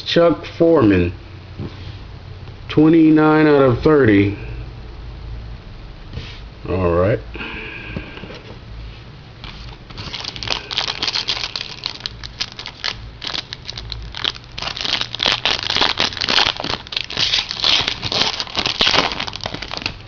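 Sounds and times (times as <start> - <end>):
plastic wrapper tearing and crinkling: 9.6 - 20.0.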